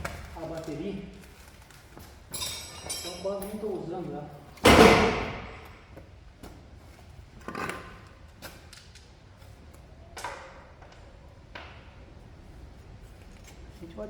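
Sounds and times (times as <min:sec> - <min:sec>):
low workshop background: 0:00.0 - 0:14.0
metal tools clinking: 0:02.3 - 0:03.7.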